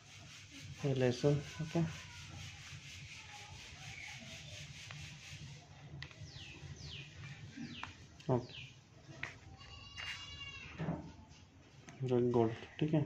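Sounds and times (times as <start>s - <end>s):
bird chirping: 6.0s - 8.8s.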